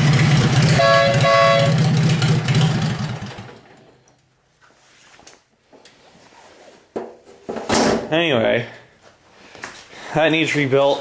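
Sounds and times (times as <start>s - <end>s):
tractor engine running: 0.0s - 3.9s.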